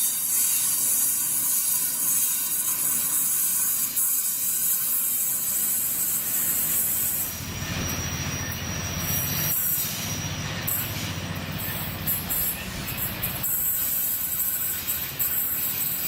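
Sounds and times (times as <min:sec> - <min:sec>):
high wheel squeal: 0:02.4 - 0:16.0
train wheels rumbling on track: 0:05.6 - 0:16.0.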